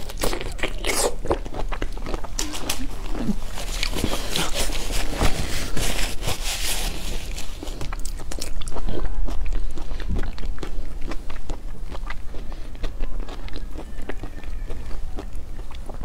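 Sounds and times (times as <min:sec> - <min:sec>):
wet chewing with clicks: 0:00.0 - 0:16.0.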